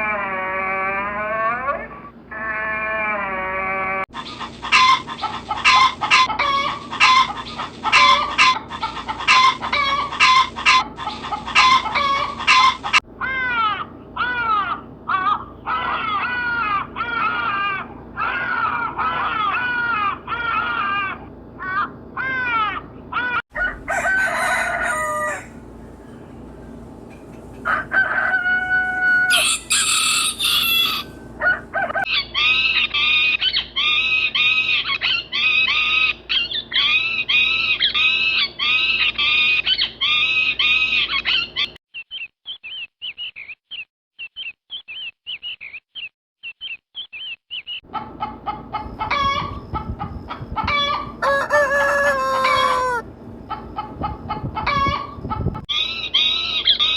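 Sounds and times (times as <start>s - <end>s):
hens clucking: 3.1s - 33.1s, 47.9s - 56.9s
chicks chirping: 4.2s - 13.0s, 23.2s - 56.9s
rooster crowing: 5.6s - 8.6s, 11.6s - 13.0s, 23.5s - 26.1s, 27.5s - 32.1s, 50.8s - 53.1s.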